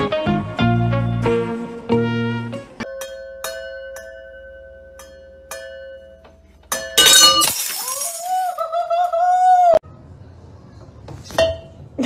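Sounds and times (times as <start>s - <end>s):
wine glasses shattering: 6.7s - 8.6s.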